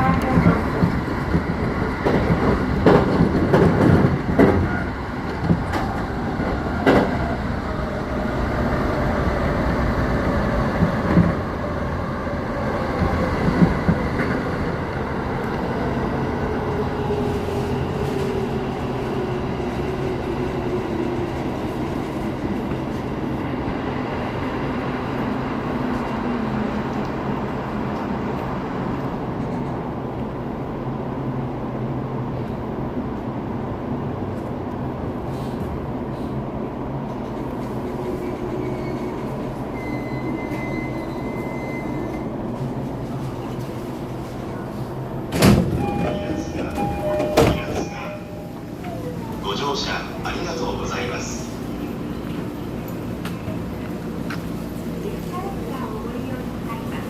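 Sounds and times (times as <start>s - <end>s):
train running rumble: 0.0s - 30.6s.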